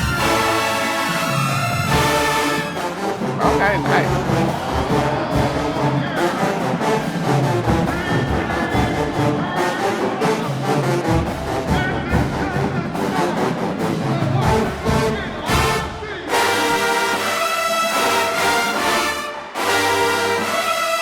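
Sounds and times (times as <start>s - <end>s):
brass section playing: 0.0s - 21.0s
steady drum beat: 1.8s - 16.2s.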